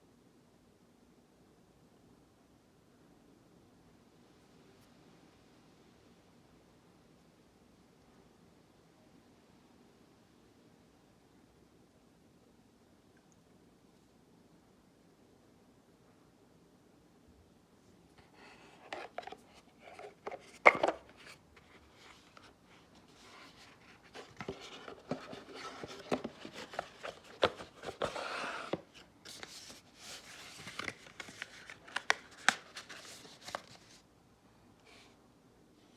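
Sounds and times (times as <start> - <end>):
packaging rustling: 18.2 - 34.0.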